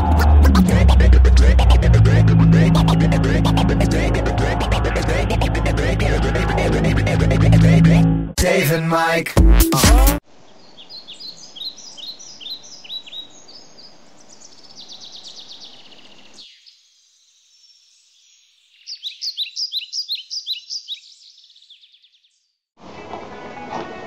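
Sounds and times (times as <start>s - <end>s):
bird chirping: 10.4s - 22.6s.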